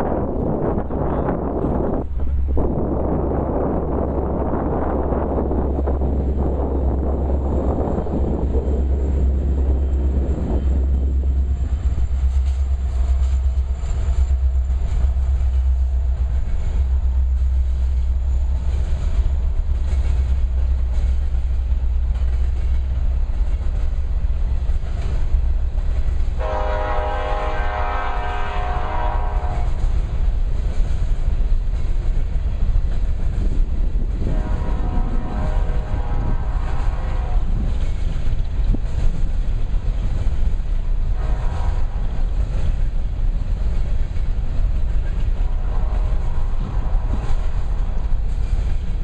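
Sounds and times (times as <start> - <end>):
freight train wheels clicking: 0.0 - 49.0
diesel locomotive horn: 26.3 - 30.0, 34.1 - 37.8, 41.0 - 42.5, 45.0 - 48.1.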